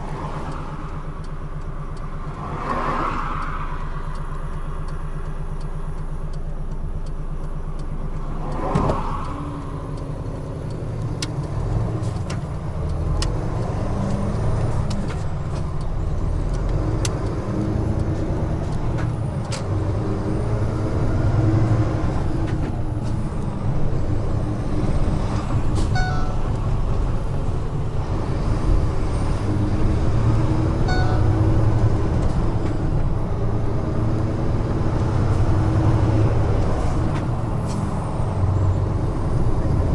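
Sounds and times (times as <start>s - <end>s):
truck diesel engine running: 3.8s - 39.9s
short beeps: 25.9s - 26.6s, 30.9s - 31.5s.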